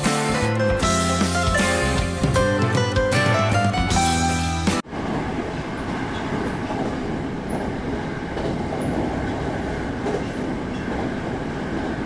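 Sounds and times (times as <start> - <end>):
train wheels rumbling on track: 4.8 - 12.0.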